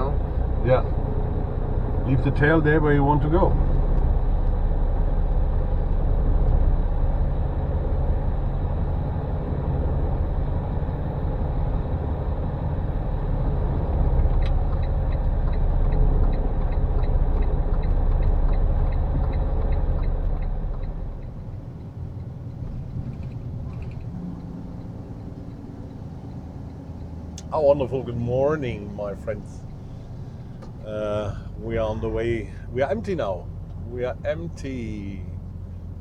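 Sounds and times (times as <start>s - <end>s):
truck engine rumbling: 0.0s - 36.0s
regular ticking clicks: 13.4s - 36.0s.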